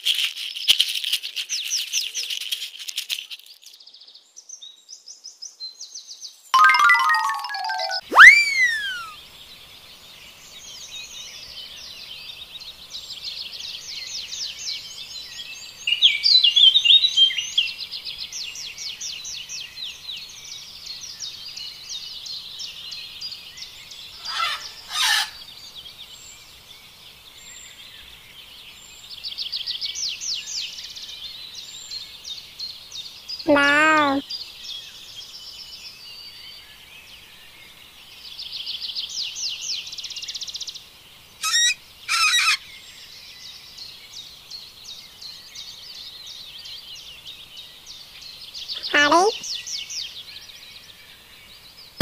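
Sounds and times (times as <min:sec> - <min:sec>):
loud falling whistle: 0:07.8 - 0:09.2.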